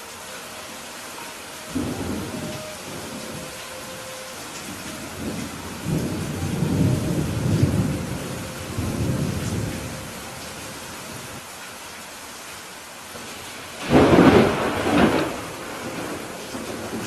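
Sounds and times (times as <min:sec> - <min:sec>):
steady rain: 0:00.0 - 0:17.0
low rumble of thunder: 0:01.7 - 0:11.4, 0:13.8 - 0:17.0.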